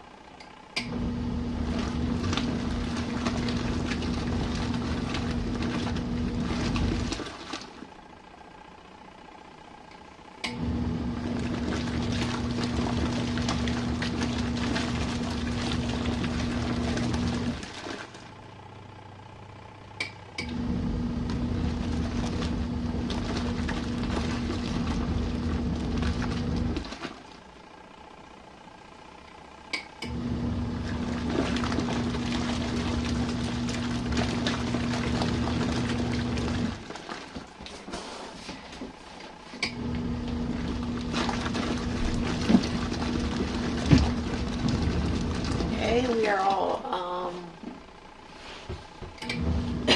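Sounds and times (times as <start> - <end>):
washing machine motor humming: 0.0 - 49.9.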